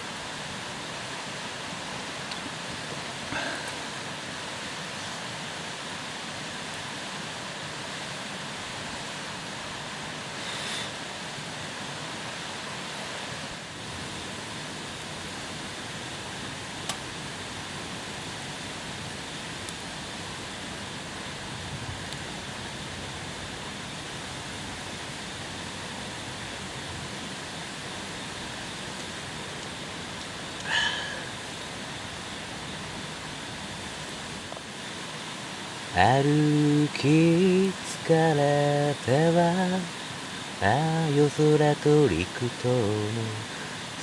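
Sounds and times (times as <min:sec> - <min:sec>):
steady rushing hiss: 0:00.0 - 0:44.0
faint sharp clicks: 0:16.8 - 0:17.1.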